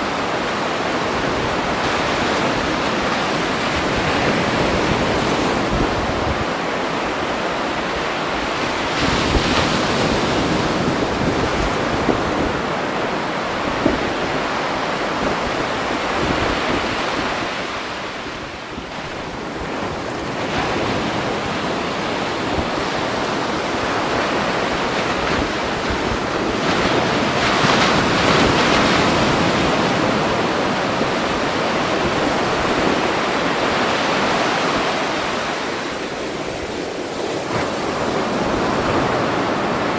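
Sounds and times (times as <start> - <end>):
waves washing on shore: 0.0 - 39.9.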